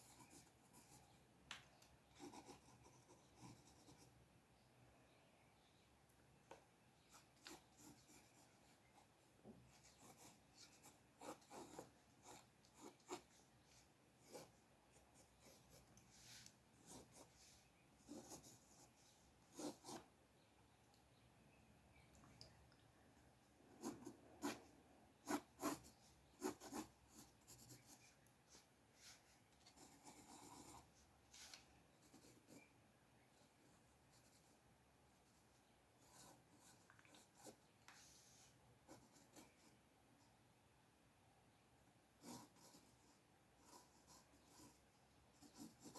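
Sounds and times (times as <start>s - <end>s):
drawing tool scratching on paper: 9.7s - 20.1s, 25.2s - 32.7s.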